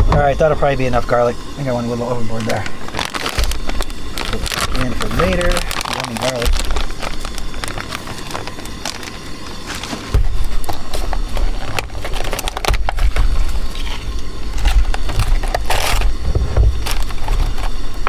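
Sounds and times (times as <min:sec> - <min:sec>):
wind rumbling on microphone: 0:16.1 - 0:18.0.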